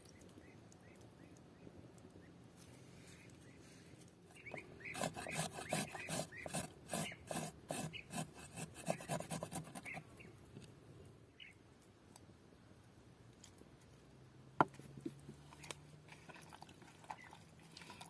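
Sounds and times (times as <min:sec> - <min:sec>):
rhythmic scraping strokes: 0:04.9 - 0:10.0.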